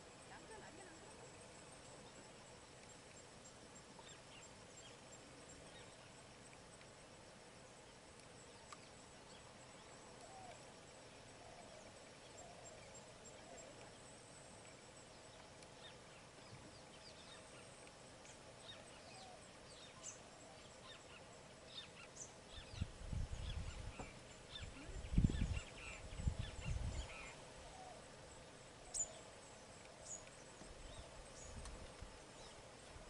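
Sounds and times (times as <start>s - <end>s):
background hiss: 0.0s - 33.0s
faint bird calls: 8.6s - 14.1s, 18.6s - 31.6s.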